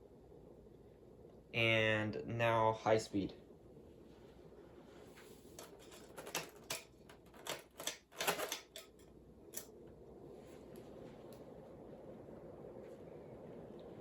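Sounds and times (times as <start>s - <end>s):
ceiling fan whooshing: 0.0s - 14.0s
clicks and rattles: 5.6s - 9.7s.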